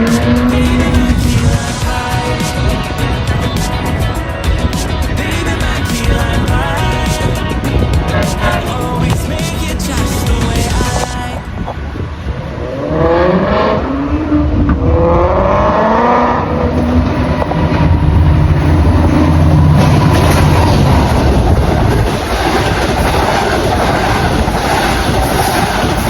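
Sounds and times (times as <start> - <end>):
wheel and rail noise: 0.0 - 26.0
train motor whine: 16.3 - 26.0.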